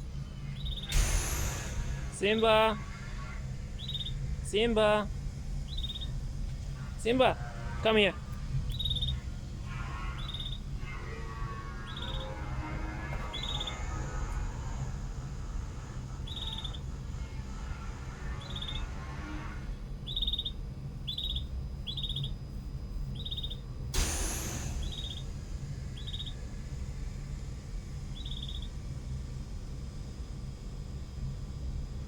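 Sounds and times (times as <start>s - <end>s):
steady low hum: 0.0s - 32.0s
brief rushing noise: 0.6s - 4.5s, 24.0s - 27.2s
canaries chirping: 3.8s - 5.1s, 5.7s - 6.1s, 7.9s - 11.0s, 11.8s - 12.4s, 13.2s - 13.9s, 16.2s - 16.8s, 18.4s - 18.9s, 20.0s - 22.4s, 23.1s - 23.6s, 24.8s - 25.2s, 26.0s - 26.3s, 28.1s - 28.7s.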